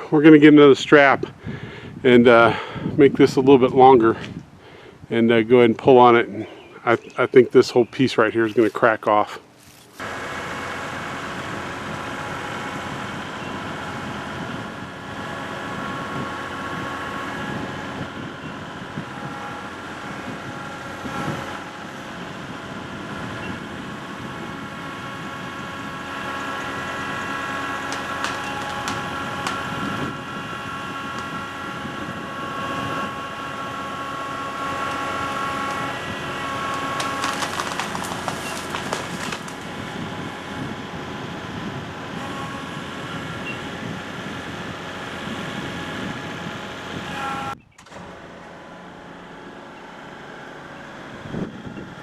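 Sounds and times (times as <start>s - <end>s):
diesel tractor engine under load: 0.0s - 52.0s
sharp clicks: 27.9s - 29.6s.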